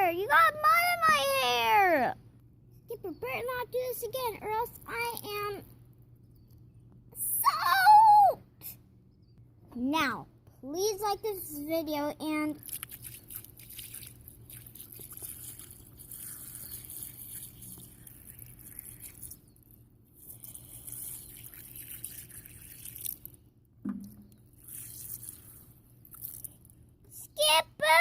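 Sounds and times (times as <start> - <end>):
water dripping and trickling: 12.6 - 26.8.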